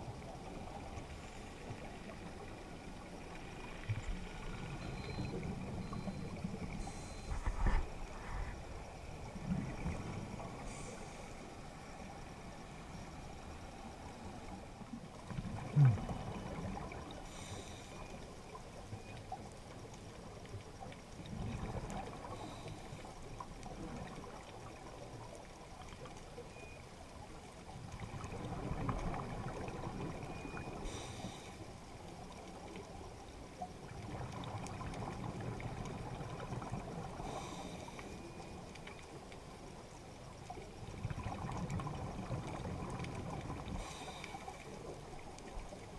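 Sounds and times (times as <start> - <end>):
diver's regulator breathing: 6.8 - 8.7, 10.6 - 11.6, 17.2 - 18.2, 30.8 - 31.7, 37.2 - 38.2, 43.7 - 44.8
exhaled bubbles gurgling: 15.2 - 17.5, 20.7 - 25.9, 27.7 - 31.1, 32.9 - 38.0, 40.3 - 45.9.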